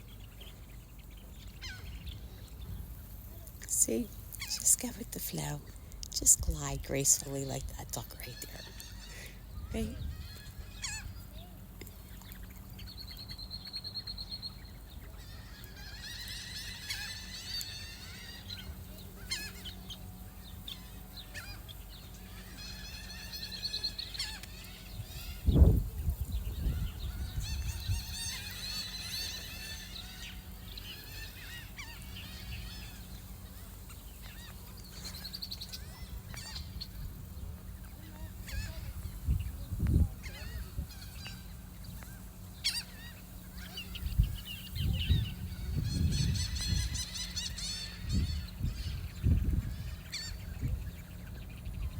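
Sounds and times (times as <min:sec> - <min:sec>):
geese honking: 0:07.0 - 0:11.4, 0:14.7 - 0:25.5, 0:26.2 - 0:39.3.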